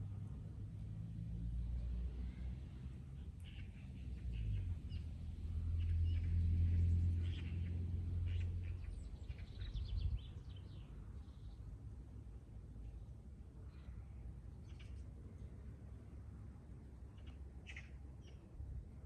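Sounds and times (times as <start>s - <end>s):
small birds chirping: 3.2s - 11.6s, 17.1s - 18.5s.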